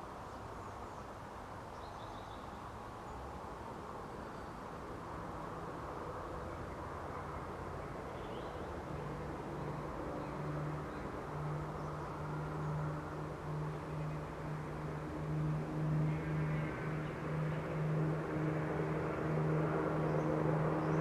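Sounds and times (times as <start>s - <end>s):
distant engine droning: 5.8s - 21.0s.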